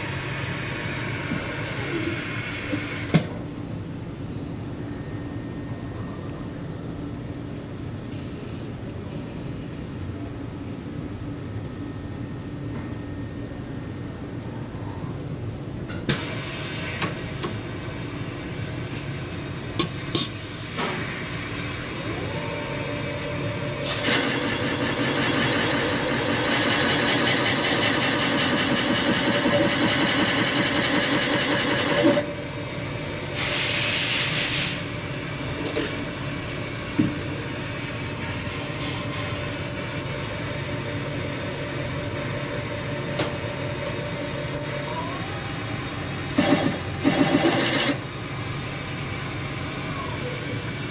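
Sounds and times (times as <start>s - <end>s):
machine shop hum: 0.0s - 50.9s
machine running loud: 21.7s - 33.6s, 39.6s - 49.2s
burst of hiss: 33.4s - 34.9s.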